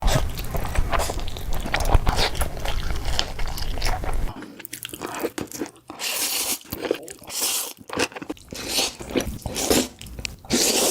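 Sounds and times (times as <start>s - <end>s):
low rumble: 0.0s - 4.3s
crunchy chewing: 0.0s - 10.9s.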